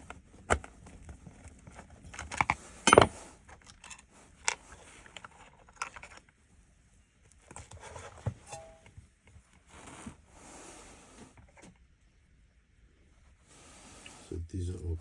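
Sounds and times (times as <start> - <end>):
plastic parts clicking and rustling: 0.5 - 6.4.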